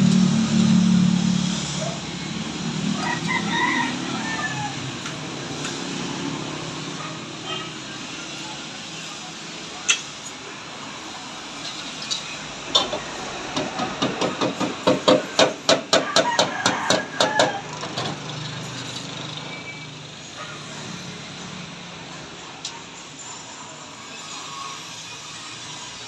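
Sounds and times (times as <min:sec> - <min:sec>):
hammer striking metal: 0:13.6 - 0:17.5.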